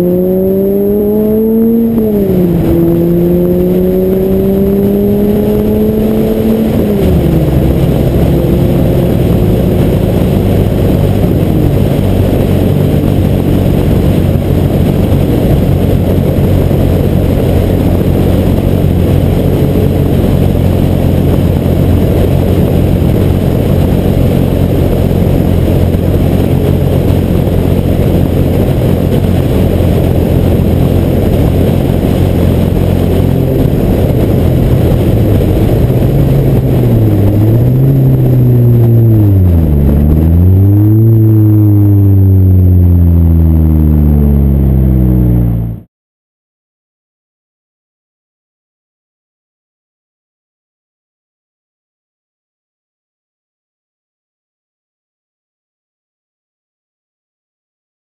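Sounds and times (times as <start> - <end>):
car engine accelerating: 0.0 - 45.9
wind and road noise: 0.0 - 45.9.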